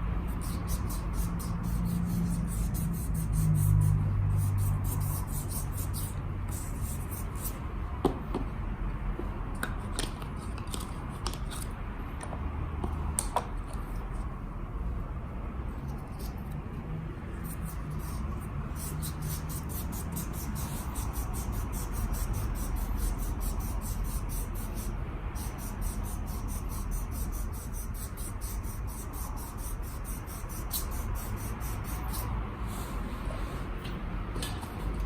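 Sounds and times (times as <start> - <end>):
rapid scrubbing strokes: 0.3 - 7.6, 17.4 - 33.8.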